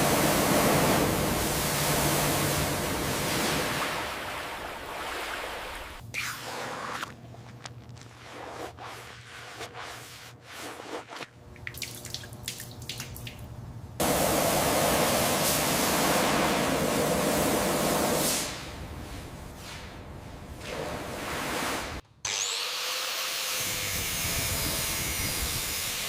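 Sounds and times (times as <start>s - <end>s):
small clicks and drips: 11.6s - 13.5s.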